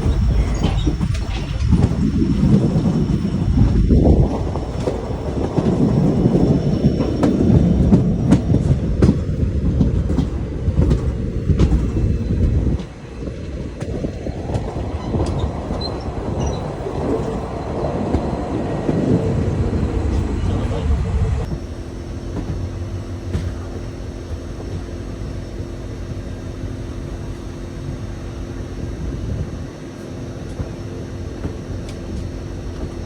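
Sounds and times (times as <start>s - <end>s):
wheels clicking over rail joints: 0.0s - 21.7s
train rumbling on rails: 0.0s - 33.0s.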